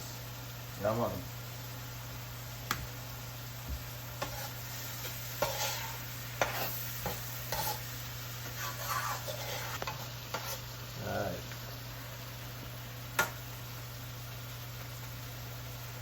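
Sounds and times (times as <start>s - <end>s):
vegetables sizzling in a pot: 0.0s - 16.0s
utensil scraping a pot: 4.1s - 10.7s.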